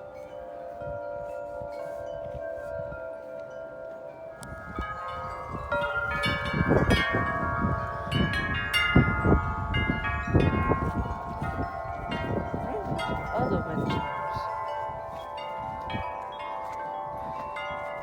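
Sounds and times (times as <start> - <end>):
wind chimes ringing: 0.0 - 18.0
wind gusts on microphone: 4.3 - 18.0.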